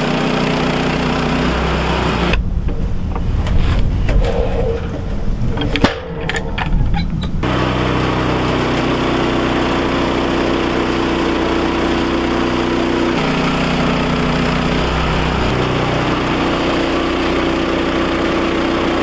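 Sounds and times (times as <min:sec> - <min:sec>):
sawmill gas engine running: 0:00.0 - 0:19.0
sharp knocks: 0:02.3 - 0:08.2.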